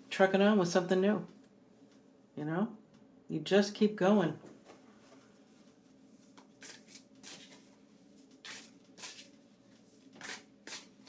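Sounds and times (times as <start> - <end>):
cards being handled: 6.2 - 11.0.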